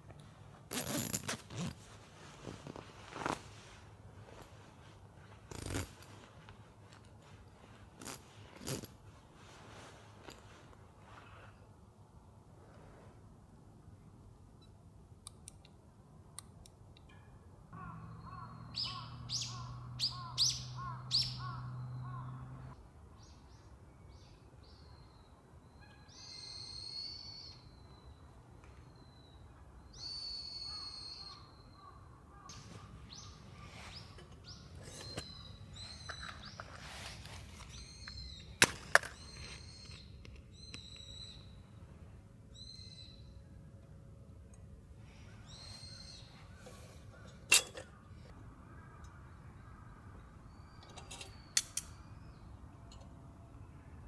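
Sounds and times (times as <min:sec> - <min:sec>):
harsh bird calls: 0:17.8 - 0:22.7
birds chirping: 0:27.2 - 0:41.6.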